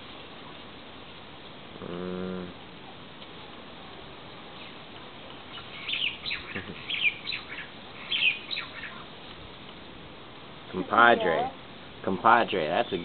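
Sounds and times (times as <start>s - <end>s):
lovebird chirping: 4.5s - 9.1s, 12.6s - 13.0s.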